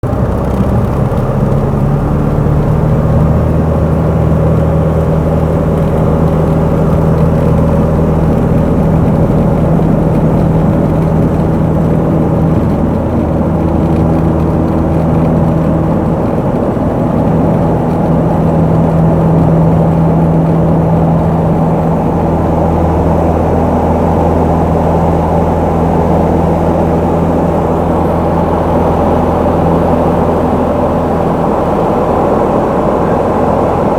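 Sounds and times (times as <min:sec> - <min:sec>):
light aircraft engine and propeller: 0:00.0 - 0:33.9.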